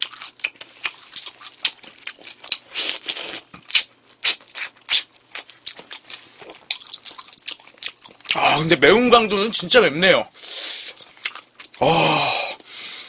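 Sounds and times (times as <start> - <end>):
wet chewing: 0.0 - 8.4, 10.8 - 11.8.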